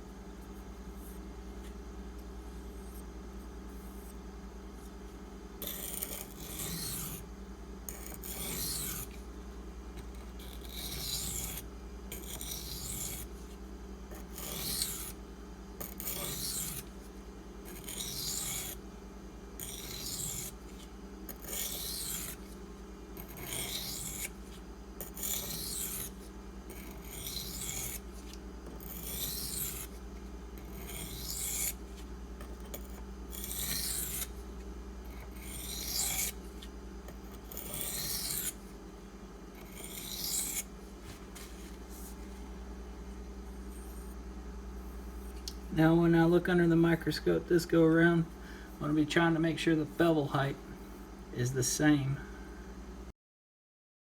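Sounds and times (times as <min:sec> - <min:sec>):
knife scraping on sharpening stone: 0:05.6 - 0:07.2, 0:07.9 - 0:09.1, 0:10.4 - 0:13.3, 0:14.3 - 0:15.1, 0:15.8 - 0:16.8, 0:17.8 - 0:18.8, 0:19.6 - 0:20.5, 0:21.4 - 0:22.4, 0:25.0 - 0:26.1, 0:26.8 - 0:28.0, 0:28.8 - 0:29.9, 0:30.6 - 0:31.8, 0:32.7 - 0:34.3, 0:35.4 - 0:36.4, 0:37.5 - 0:38.5, 0:39.6 - 0:40.6.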